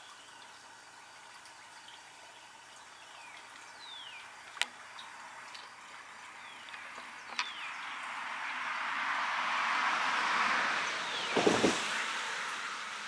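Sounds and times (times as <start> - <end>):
birds whistling downward notes: 10.9 - 12.0.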